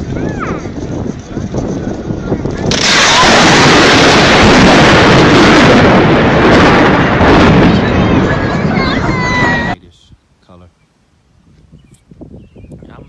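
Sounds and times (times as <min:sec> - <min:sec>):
thunderclap rumbling: 0:00.0 - 0:09.8.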